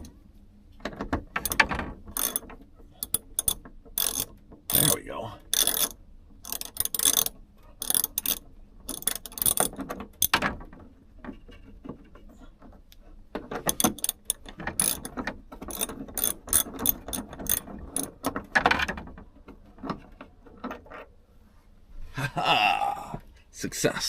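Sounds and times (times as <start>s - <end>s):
socket ratchet clicking: 1.4s - 2.4s, 3.0s - 4.9s, 5.5s - 10.4s, 13.7s - 15.1s, 15.7s - 18.4s.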